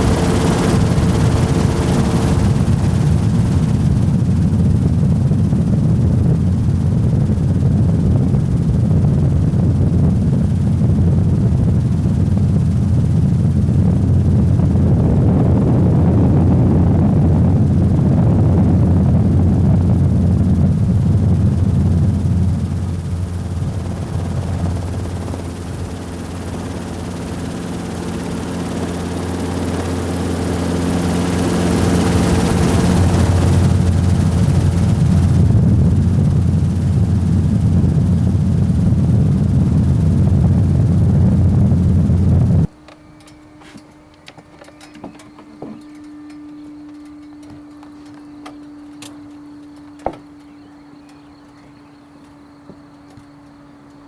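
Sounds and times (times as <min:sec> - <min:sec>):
helicopter rotor and engine drone: 0:00.0 - 0:54.0
steady background hum: 0:00.0 - 0:54.0
scattered clicks: 0:42.8 - 0:54.0.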